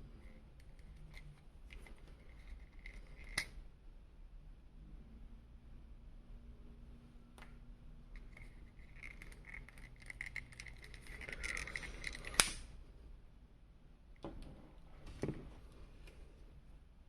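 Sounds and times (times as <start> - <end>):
plastic parts clicking and rattling: 0.6 - 3.5, 8.2 - 12.6
sharp plastic snap: 12.3 - 12.6.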